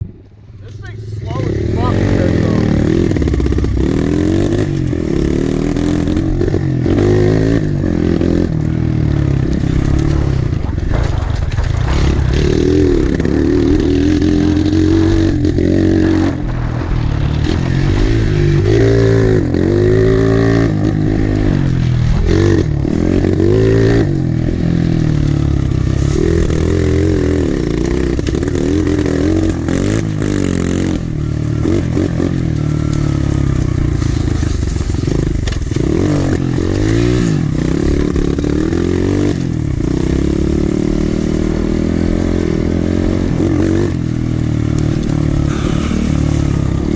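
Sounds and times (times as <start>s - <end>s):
pit bike engine revving: 0.6s - 46.9s
clatter: 3.0s - 19.6s, 20.7s - 31.0s, 31.6s - 40.1s.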